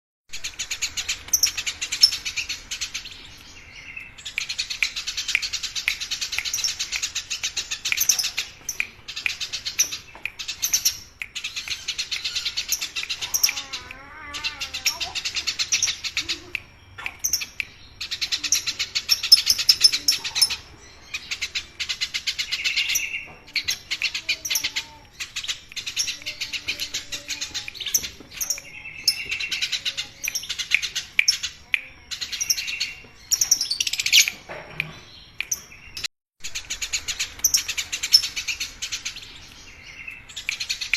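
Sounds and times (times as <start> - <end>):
sparrows chirping: 0.4 - 40.9.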